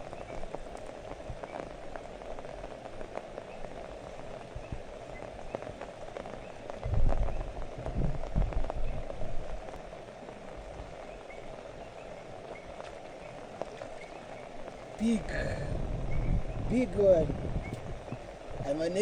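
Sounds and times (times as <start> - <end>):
raindrop clicks: 0.0 - 18.8
steady rain falling: 0.0 - 19.0
loud low thumps and rumbles: 15.4 - 18.8.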